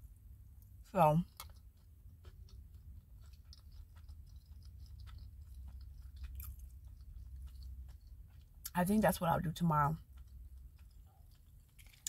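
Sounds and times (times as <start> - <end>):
steady low hum: 0.0 - 11.7
wet chewing mouth clicks: 1.3 - 8.8, 10.0 - 12.0.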